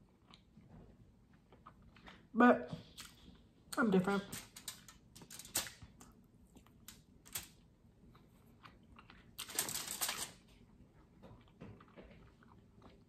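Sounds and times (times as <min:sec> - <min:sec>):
person chewing: 0:00.0 - 0:03.7, 0:06.1 - 0:09.5, 0:10.4 - 0:13.0.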